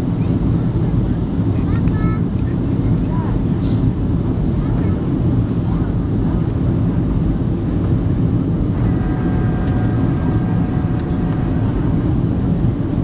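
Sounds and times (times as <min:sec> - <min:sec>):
aircraft cabin engine rumble: 0:00.0 - 0:13.0
high multi-tone whine: 0:08.5 - 0:13.0.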